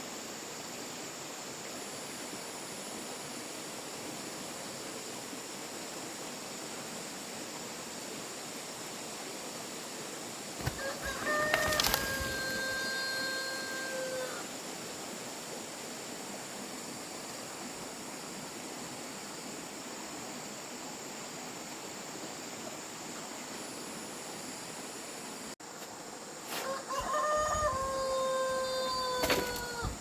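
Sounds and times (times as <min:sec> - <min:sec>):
insect chirring: 0:10.3 - 0:14.6
rooster crowing: 0:10.6 - 0:14.5, 0:26.5 - 0:30.0.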